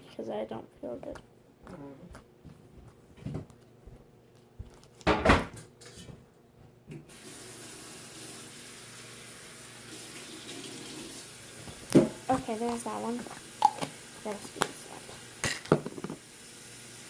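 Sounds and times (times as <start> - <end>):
tap water running into sink: 7.1 - 17.0.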